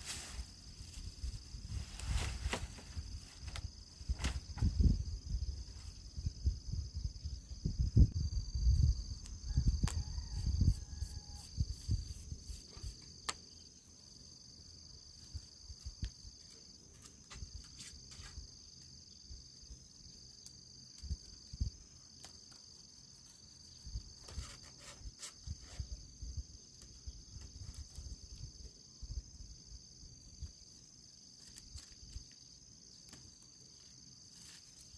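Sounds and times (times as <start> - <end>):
rustling: 0.0 - 4.7
insects trilling: 0.0 - 34.9.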